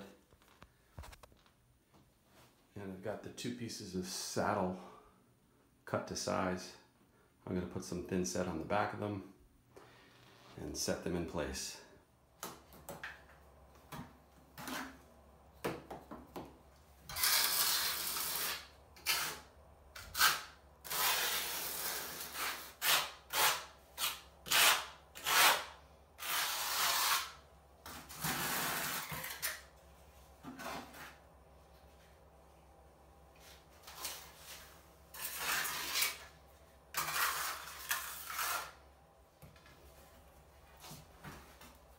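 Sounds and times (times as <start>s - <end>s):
trowel scraping mortar: 17.1s - 29.6s, 33.9s - 36.3s, 36.9s - 38.8s.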